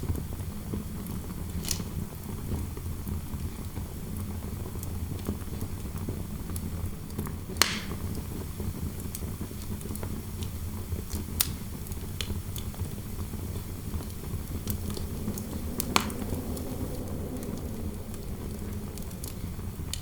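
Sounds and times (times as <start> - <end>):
fire crackling: 0.0 - 20.0
low fire rumble: 0.0 - 20.0
sharp fire pops: 7.5 - 20.0.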